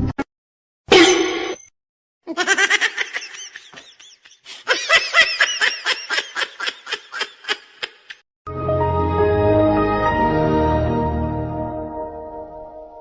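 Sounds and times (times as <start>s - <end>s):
person laughing hard: 2.3s - 8.2s.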